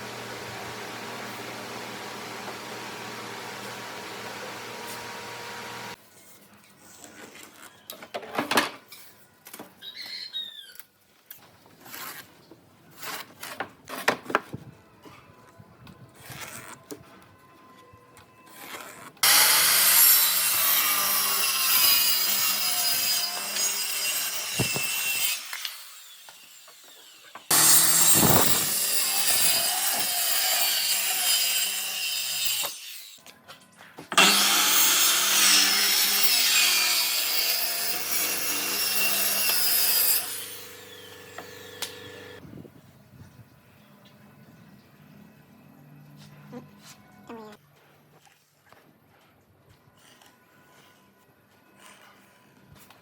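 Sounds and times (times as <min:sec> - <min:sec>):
loud sawing: 0:00.0 - 0:06.0, 0:19.2 - 0:33.2, 0:34.2 - 0:42.4.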